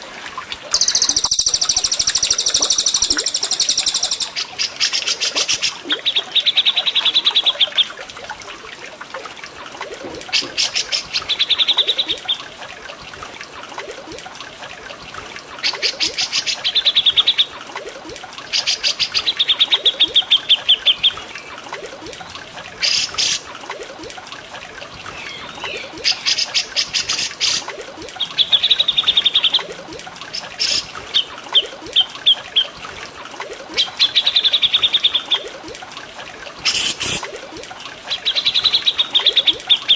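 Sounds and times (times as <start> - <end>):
running water trickle: 0.0 - 39.9
songbirds chattering trills: 0.7 - 6.9.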